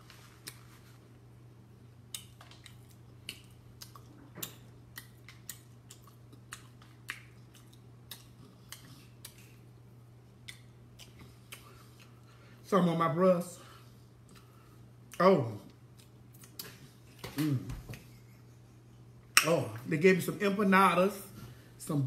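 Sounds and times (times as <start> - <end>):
steady low hum: 0.0 - 22.0
person chewing with mouth clicks: 2.0 - 12.4, 14.2 - 17.7.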